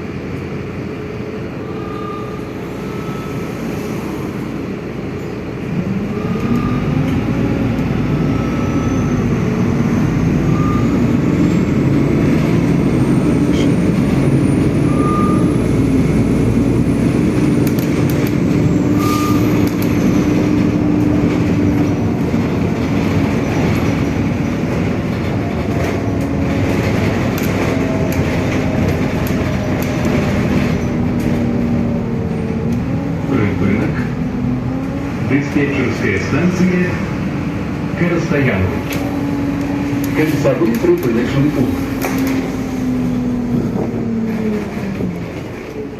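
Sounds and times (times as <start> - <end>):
bus engine running: 0.0 - 45.9.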